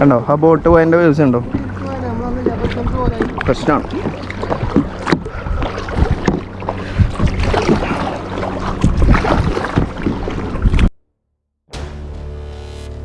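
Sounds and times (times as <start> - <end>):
steady low hum: 0.0 - 10.9
water sloshing against hull: 0.0 - 10.9
paddle strokes splashing: 1.2 - 10.9
paddle knocks: 1.4 - 10.6.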